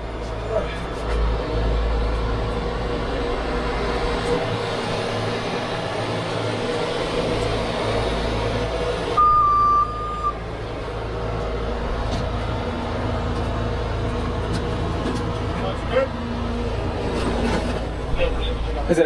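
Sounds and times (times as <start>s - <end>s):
diesel truck engine running: 0.0s - 19.0s
high electronic beep: 9.2s - 10.4s.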